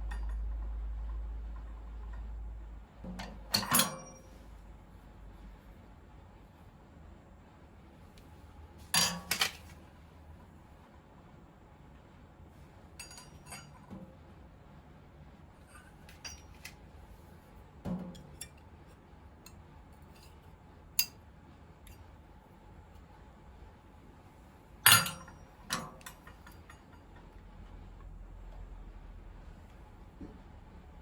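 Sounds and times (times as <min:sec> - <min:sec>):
metal tools clinking: 0:03.5 - 0:04.4, 0:09.0 - 0:09.7, 0:13.0 - 0:13.8, 0:15.8 - 0:16.7, 0:24.8 - 0:26.7.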